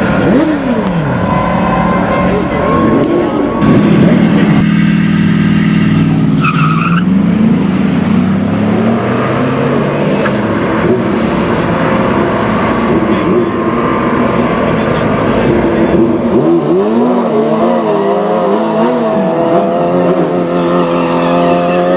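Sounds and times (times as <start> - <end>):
tire noise: 0.0 - 21.9
truck engines racing: 0.0 - 21.9.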